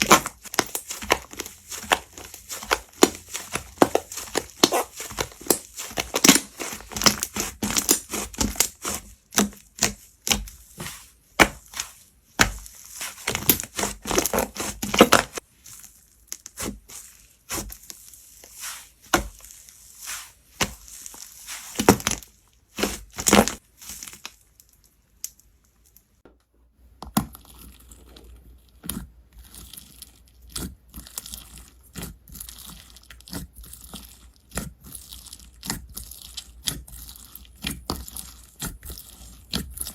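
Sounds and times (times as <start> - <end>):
slime crackling and popping: 0.0 - 24.4.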